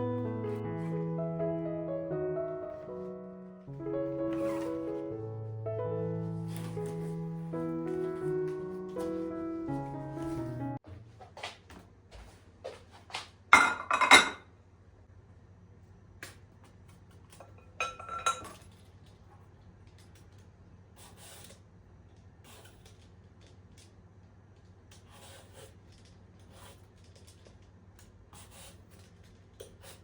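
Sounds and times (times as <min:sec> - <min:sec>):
faint handling sounds: 0:06.2 - 0:13.4
dishes clinking: 0:13.6 - 0:14.5, 0:17.4 - 0:18.7.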